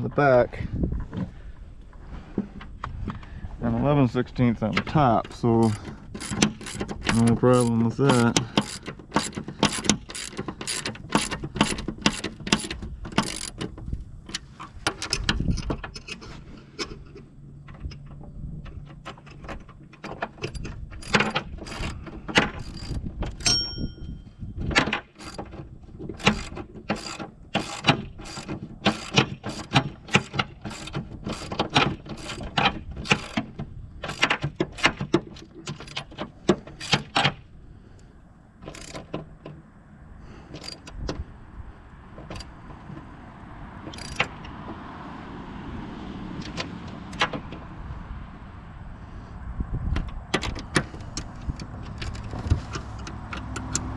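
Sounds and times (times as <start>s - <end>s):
wrench ratcheting clicks: 5.6s - 13.7s, 26.2s - 31.6s, 38.6s - 39.1s, 43.9s - 44.4s
metallic ringing ping: 23.5s - 24.3s.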